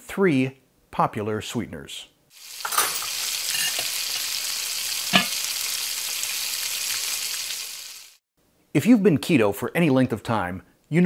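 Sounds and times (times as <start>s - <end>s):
food sizzling in a pan: 2.3s - 8.2s.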